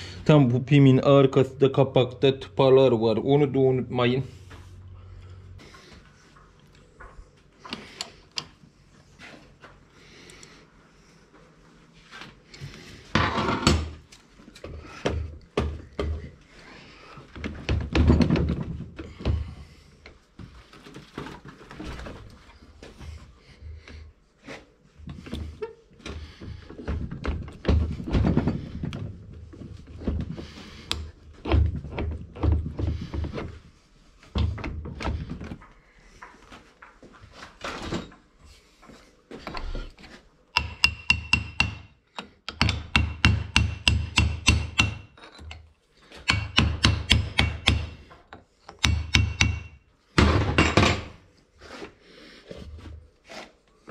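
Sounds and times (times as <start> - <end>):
hammer striking metal punch: 40.6 - 41.9, 42.5 - 45.2, 46.2 - 48.0, 48.8 - 49.8.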